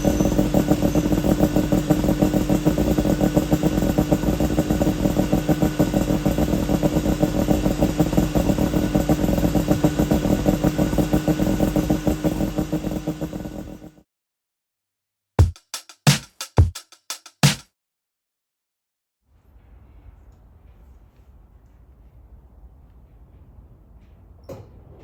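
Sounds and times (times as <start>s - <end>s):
two-stroke engine running: 0.0s - 14.0s
music drum hits: 15.4s - 17.6s.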